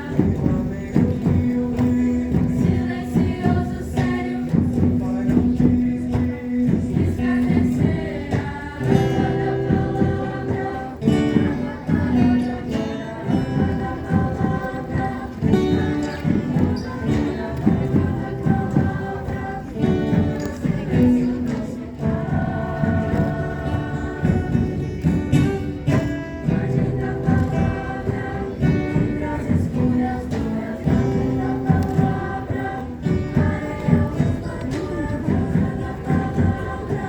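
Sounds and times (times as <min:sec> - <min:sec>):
group of voices singing: 0:00.0 - 0:37.0.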